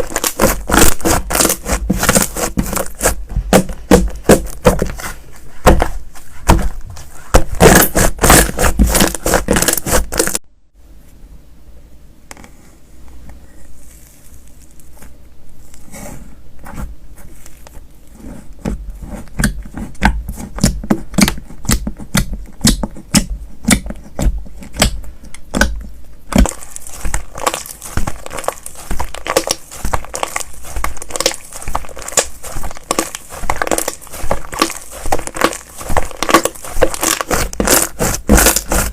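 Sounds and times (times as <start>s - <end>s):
slime crackling and popping: 0.0s - 4.9s, 7.4s - 10.4s, 24.7s - 38.9s.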